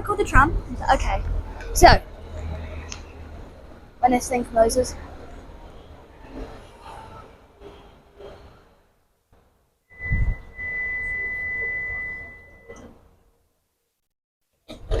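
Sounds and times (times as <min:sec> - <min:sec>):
high-pitched warning beep: 0:10.0 - 0:12.8.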